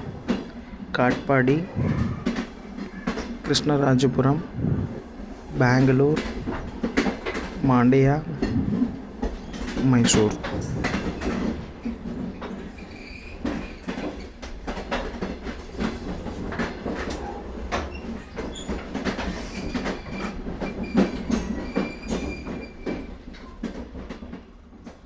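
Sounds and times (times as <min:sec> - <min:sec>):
train rumbling on track: 0:00.0 - 0:25.0
wheels clacking over rails: 0:00.0 - 0:25.0.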